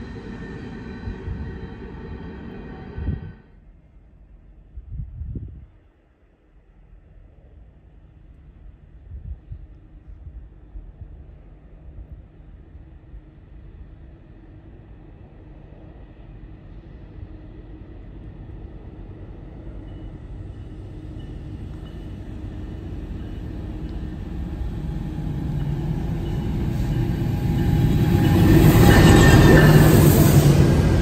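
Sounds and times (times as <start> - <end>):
diesel locomotives passing: 0.0 - 3.6, 13.3 - 31.0.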